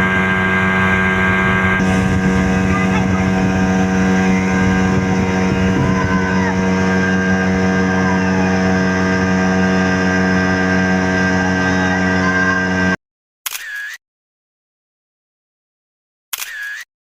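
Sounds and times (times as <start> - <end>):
speed boat motor droning: 0.0 - 13.0.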